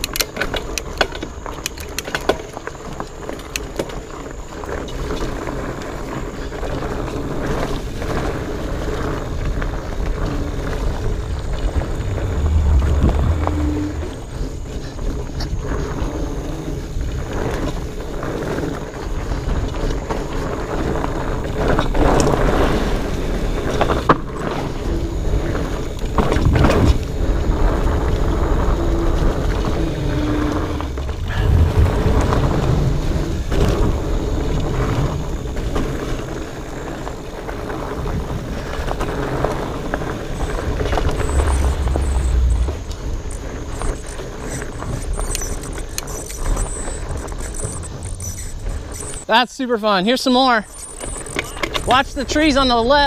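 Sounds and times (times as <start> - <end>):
bike tyre and drivetrain rattle: 0.0 - 53.0
wind buffeting microphone: 7.1 - 23.8, 24.6 - 49.3
short squeaks: 40.4 - 49.3, 50.6 - 51.9.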